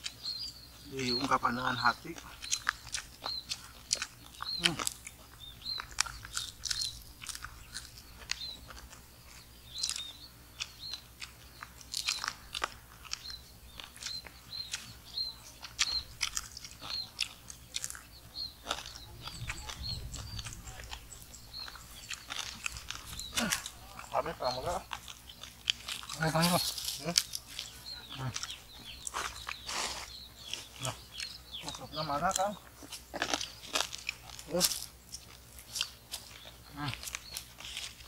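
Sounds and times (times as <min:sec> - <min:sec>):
crunching and chewing food: 0:00.0 - 0:38.0.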